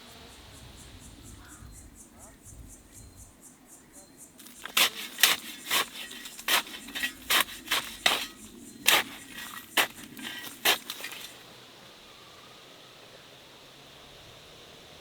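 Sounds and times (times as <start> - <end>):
sharp crunching knocks: 4.4 - 11.4.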